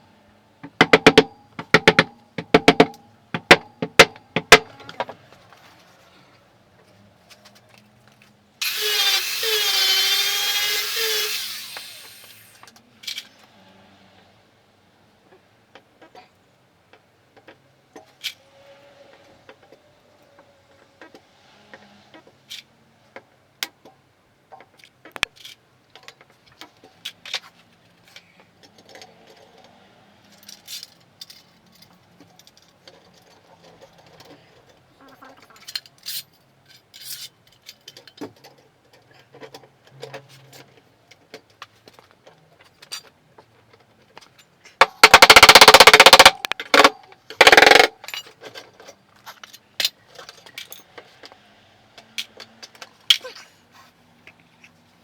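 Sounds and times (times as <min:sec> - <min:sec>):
tools tapping on car panel: 0:00.6 - 0:04.7
stud welder buzzing burst: 0:08.6 - 0:12.6.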